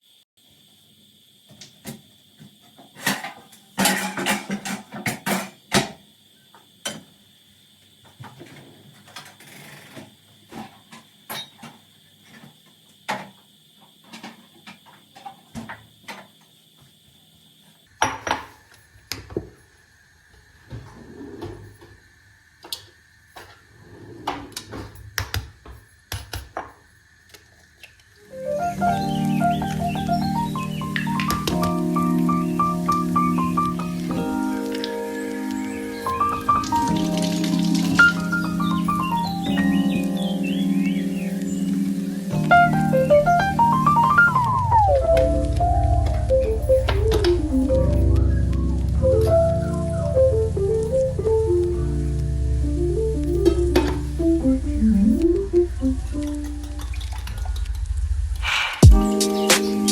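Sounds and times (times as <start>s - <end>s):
dishes and utensils clinking: 3.8s - 4.9s.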